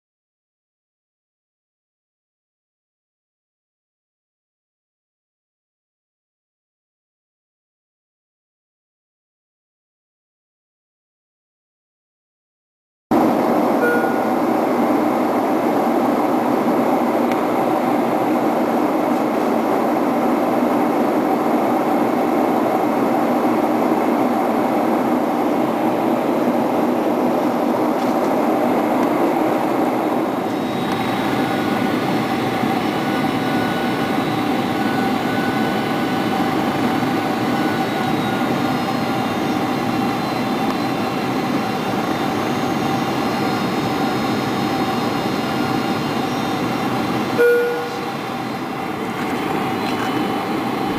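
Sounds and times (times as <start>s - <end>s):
jet engine drone: 13.1s - 50.9s
rushing air in aircraft cabin: 13.1s - 50.9s
faint high whines: 13.2s - 15.8s, 29.0s - 50.9s.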